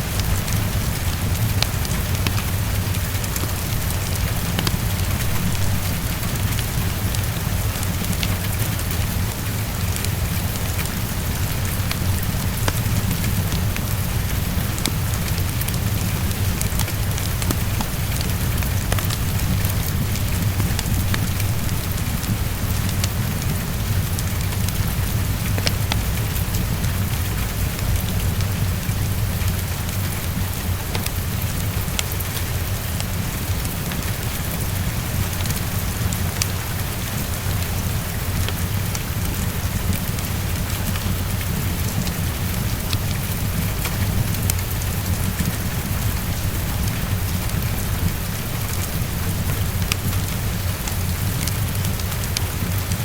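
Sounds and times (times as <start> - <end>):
fireplace crackling: 0.0 - 26.6
heavy rain on a window: 0.0 - 53.0.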